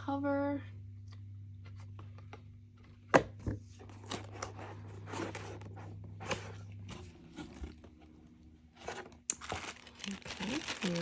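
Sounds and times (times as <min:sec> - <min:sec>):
cardboard scraping and rustling: 0:03.7 - 0:11.0.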